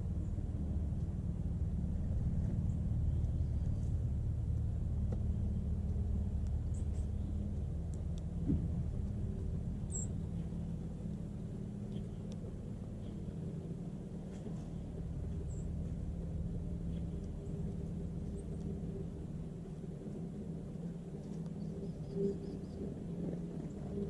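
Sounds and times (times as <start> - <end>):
low vehicle engine rumble: 0.0 - 24.0
faint high bird chirps: 9.8 - 10.4.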